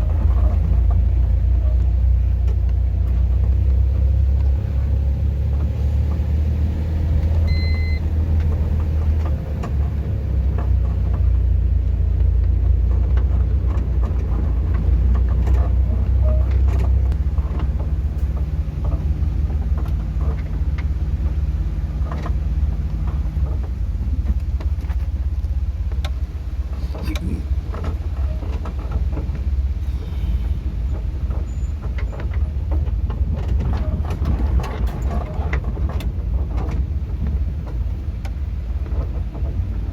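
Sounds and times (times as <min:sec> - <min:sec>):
vehicle driving rumble: 0:00.0 - 0:39.9
short beep: 0:07.5 - 0:08.1
knocks and rattles: 0:08.3 - 0:39.9.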